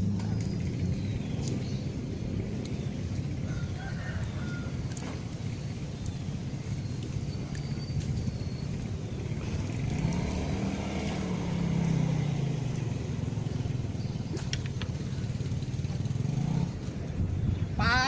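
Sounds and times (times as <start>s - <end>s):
passing motor vehicle engine: 8.2s - 17.8s.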